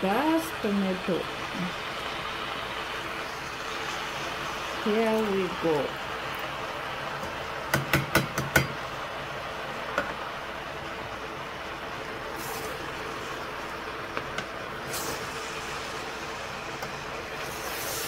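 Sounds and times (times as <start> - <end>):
vegetables sizzling in a pot: 0.0 - 18.0
knocks against cooking pot: 7.2 - 8.8
sharp hisses: 14.8 - 16.5, 17.4 - 18.0.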